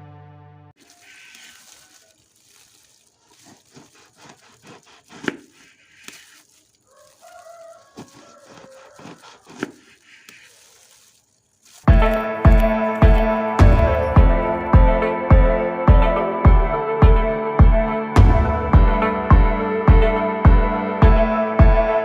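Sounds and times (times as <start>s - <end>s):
rooster crowing: 6.8s - 9.8s.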